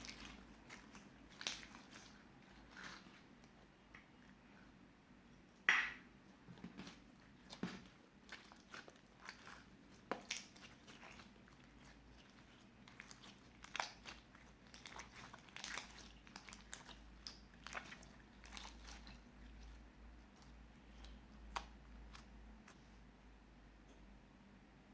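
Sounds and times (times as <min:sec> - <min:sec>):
slime crackling and popping: 0:00.0 - 0:03.1, 0:07.3 - 0:22.4.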